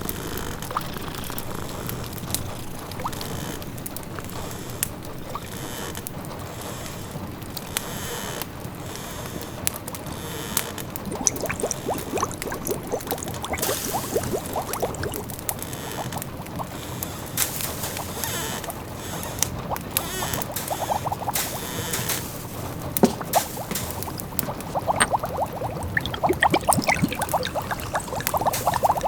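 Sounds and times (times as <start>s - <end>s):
pot of food bubbling: 11.0s - 29.0s
rain hiss: 11.1s - 15.3s, 15.9s - 29.0s
wood fire crackling: 16.2s - 25.8s.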